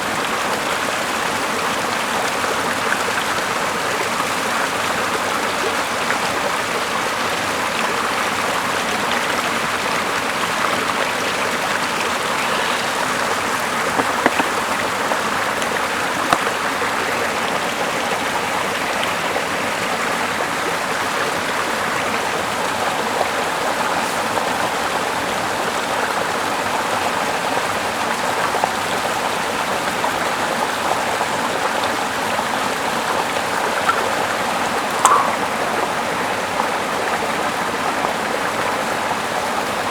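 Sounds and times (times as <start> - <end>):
river water rushing: 9.9 - 39.9
sharp clicks: 35.0 - 35.6.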